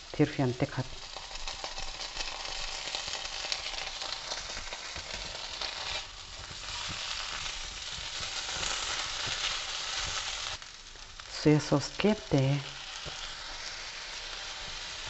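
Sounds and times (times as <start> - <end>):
food sizzling in a wok: 0.0 - 15.0
spatula scraping and tapping pan: 1.1 - 10.5, 12.9 - 15.0.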